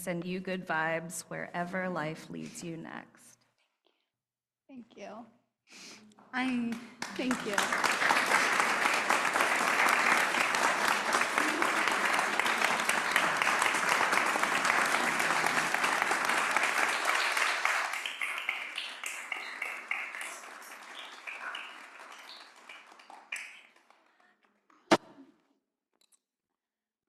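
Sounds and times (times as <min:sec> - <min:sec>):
congregation applauding: 0:06.4 - 0:24.3.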